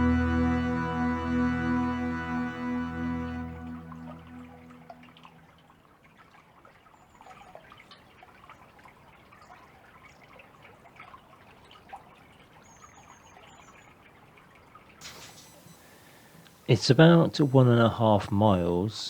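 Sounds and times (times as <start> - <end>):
water trickling and dripping: 3.6 - 19.0.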